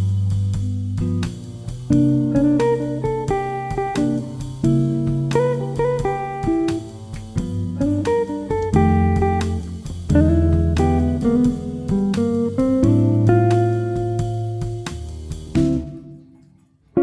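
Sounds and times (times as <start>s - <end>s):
plucked guitar tune: 0.0s - 17.0s
low bass line: 4.1s - 16.1s.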